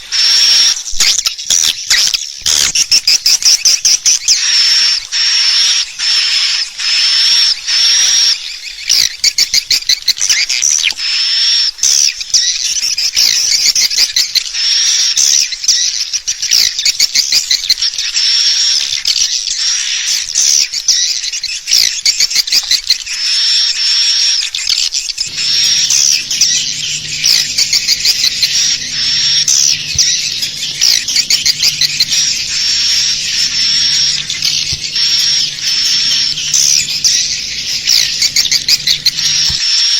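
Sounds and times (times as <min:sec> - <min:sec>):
swiftlet calls twittering: 0:00.0 - 0:39.9
low steady hum: 0:25.3 - 0:39.6.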